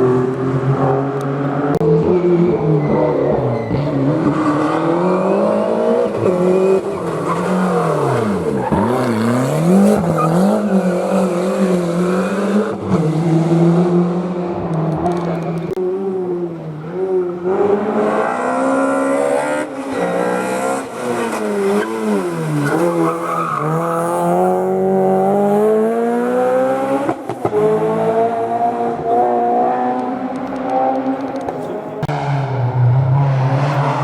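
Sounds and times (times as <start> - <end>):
rally car engine revving: 0.0 - 34.0.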